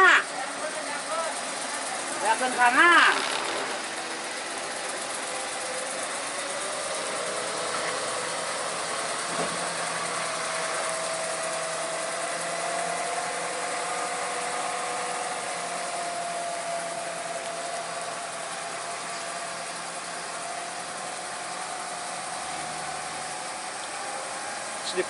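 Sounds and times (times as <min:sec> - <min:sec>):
heavy truck engine pulling hard: 0:00.0 - 0:25.0.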